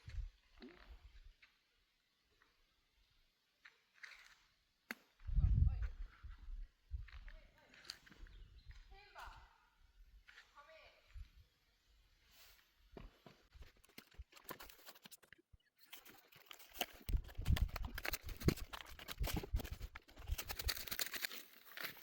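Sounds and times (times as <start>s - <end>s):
rustling with clicks and taps: 12.9s - 22.0s.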